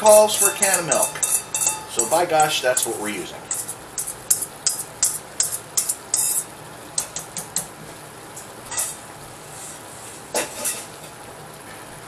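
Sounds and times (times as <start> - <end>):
food sizzling in a skillet: 0.0 - 6.5, 8.7 - 11.1.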